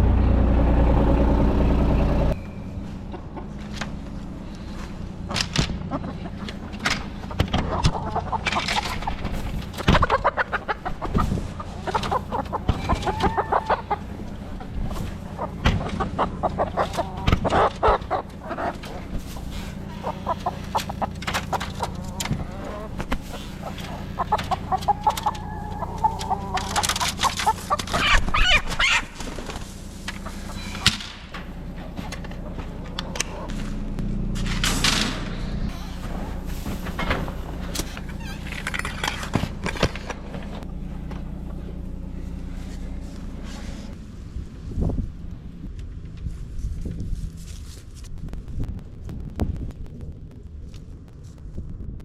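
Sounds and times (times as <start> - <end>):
steady low rumble: 0.0 - 52.0
hens clucking and squawking: 2.9 - 33.7.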